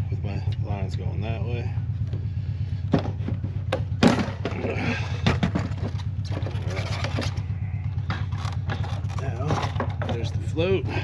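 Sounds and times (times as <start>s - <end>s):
steady low hum: 0.0s - 11.0s
metal part knocking and scraping: 2.9s - 10.4s.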